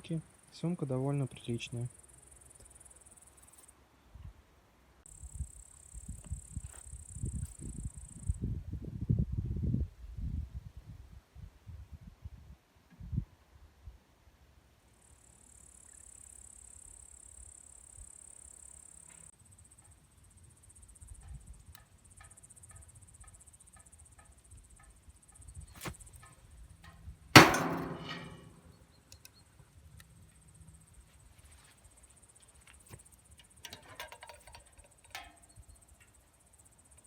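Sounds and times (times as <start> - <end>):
metallic clang: 27.4 - 28.8.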